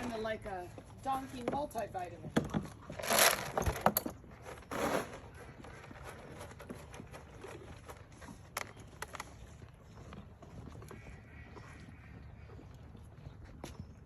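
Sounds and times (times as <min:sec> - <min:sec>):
feed pellets rattling: 0:03.0 - 0:03.8.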